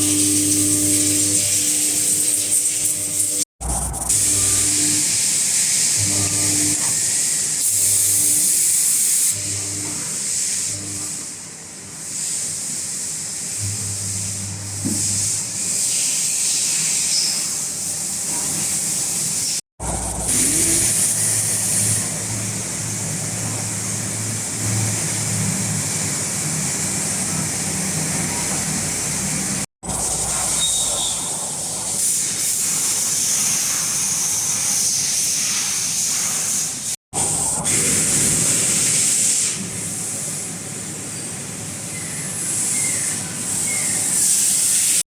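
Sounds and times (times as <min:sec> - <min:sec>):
milling machine hum: 0:00.0 - 0:11.7, 0:19.8 - 0:31.9
coolant spray hissing: 0:00.1 - 0:10.8, 0:12.0 - 0:40.8, 0:41.6 - 0:45.0.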